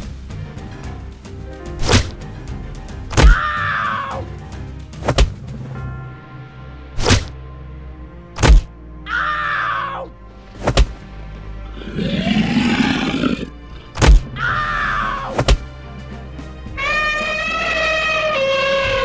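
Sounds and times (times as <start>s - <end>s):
background music: 0.0s - 19.0s
deep animal roar: 11.7s - 14.6s
short cries falling in pitch: 16.8s - 19.0s.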